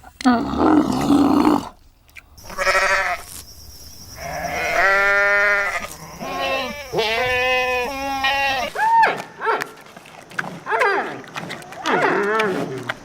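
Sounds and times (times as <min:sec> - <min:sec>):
animal bleating: 0:00.2 - 0:01.7, 0:02.5 - 0:03.3, 0:04.2 - 0:08.8.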